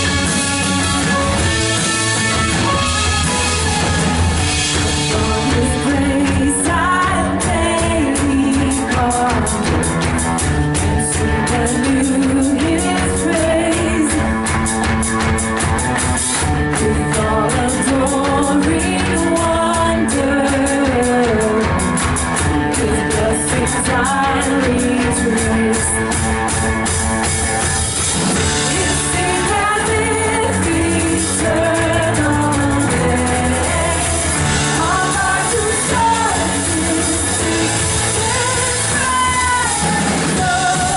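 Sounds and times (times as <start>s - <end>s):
drum kit beat: 0.0s - 40.9s
guitar: 0.0s - 40.9s
person singing: 4.7s - 10.1s, 10.7s - 14.6s, 16.6s - 26.4s, 28.5s - 40.9s.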